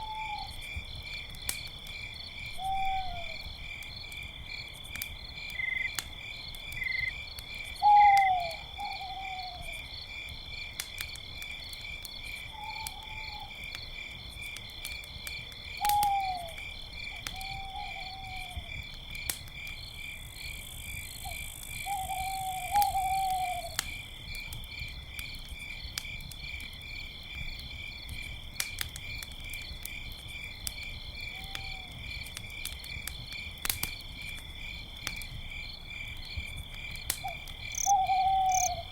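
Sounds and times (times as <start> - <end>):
crickets chirring: 0.0 - 38.9
faint campfire crackles: 0.0 - 38.9
owls hooting: 21.9 - 23.8, 37.8 - 38.9.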